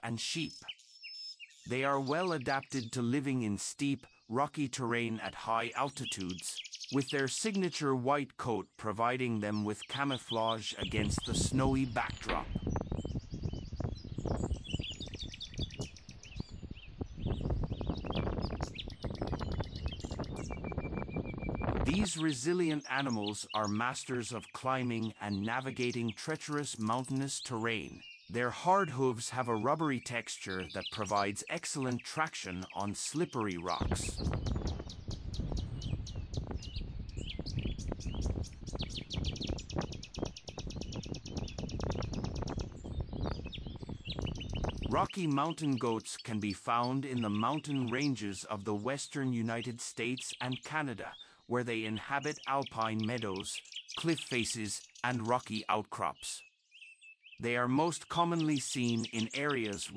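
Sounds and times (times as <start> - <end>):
small birds chirping: 0.0 - 59.9
wind on microphone: 10.2 - 22.3, 33.7 - 45.2.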